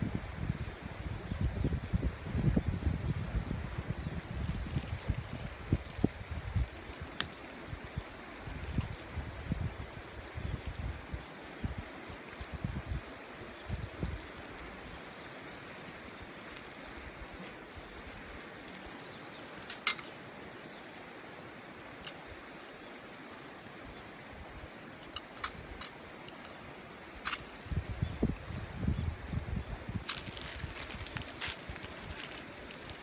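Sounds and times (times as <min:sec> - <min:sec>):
wind buffeting microphone: 0:00.0 - 0:11.8, 0:27.4 - 0:33.0
river flowing: 0:14.2 - 0:28.6, 0:30.0 - 0:33.0.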